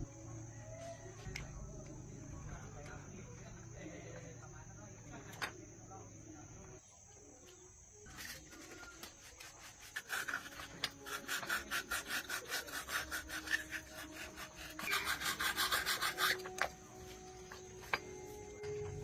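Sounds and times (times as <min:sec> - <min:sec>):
hand tool scraping workpiece: 0:08.1 - 0:16.8.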